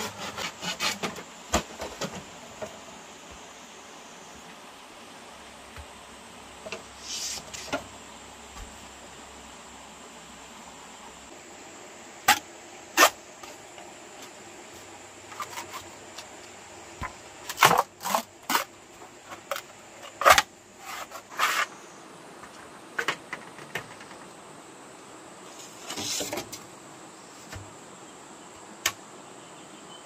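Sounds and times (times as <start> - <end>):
faint high hiss: 0.0 - 30.0
sharp knocks and clatters: 22.5 - 24.3.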